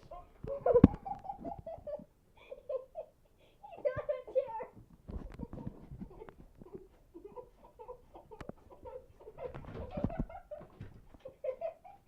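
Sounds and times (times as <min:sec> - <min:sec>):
child making wordless sounds: 0:03.7 - 0:04.8
knocks and thumps: 0:09.4 - 0:11.3.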